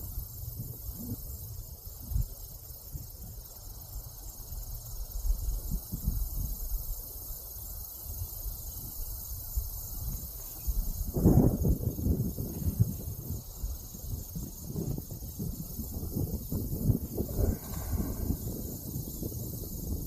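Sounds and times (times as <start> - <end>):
insects chirring: 0.0 - 20.0
wind buffeting microphone: 4.1 - 7.0, 8.1 - 20.0.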